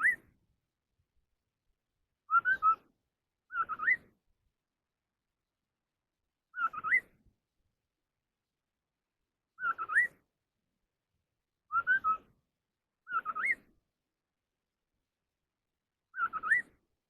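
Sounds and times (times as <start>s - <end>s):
songbird whistling: 0.0s - 0.3s, 2.3s - 2.9s, 3.5s - 4.2s, 6.5s - 7.2s, 9.6s - 10.2s, 11.7s - 12.3s, 13.0s - 13.7s, 16.1s - 16.8s.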